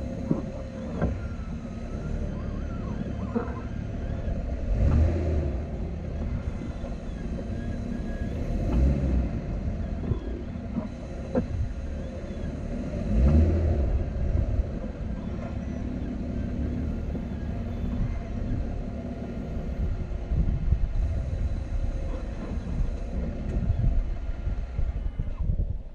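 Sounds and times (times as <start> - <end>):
sharp clicks from wheels: 0.0 - 2.0
car engine running low: 0.0 - 25.9.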